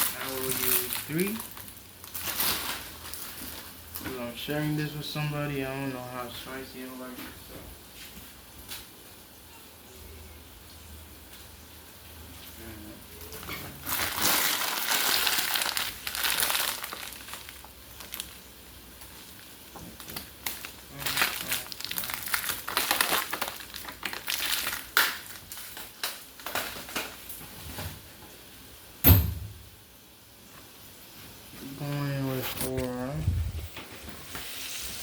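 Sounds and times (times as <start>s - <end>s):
dry crinkling and crushing: 0.0s - 4.8s, 13.2s - 27.5s
sharp thump: 29.0s - 29.6s.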